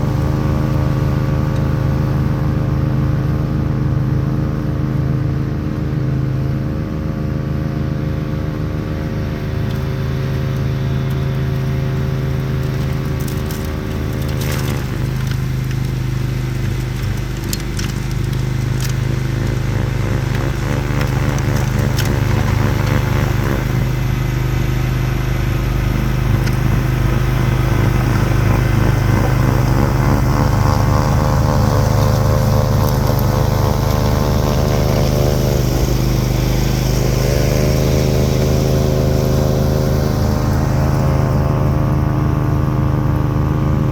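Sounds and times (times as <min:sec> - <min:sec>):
lawn tractor engine running: 0:00.0 - 0:43.9.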